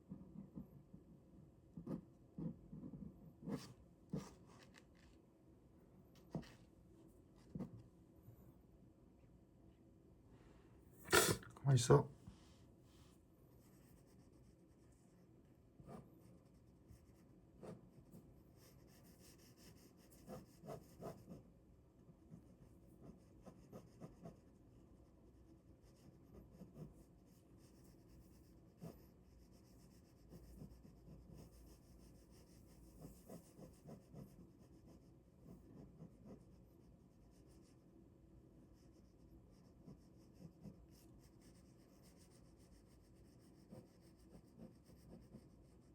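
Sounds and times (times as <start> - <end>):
pen scratching on paper: 1.7 - 5.1, 6.2 - 6.7, 7.4 - 7.8, 13.6 - 14.9, 15.8 - 21.5, 22.2 - 25.1, 25.8 - 37.8, 38.7 - 45.9.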